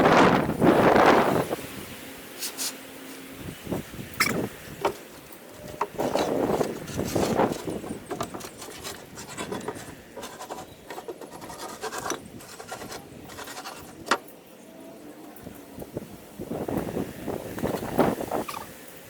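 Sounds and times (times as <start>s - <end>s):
wood scraping and rubbing: 4.2s - 14.2s.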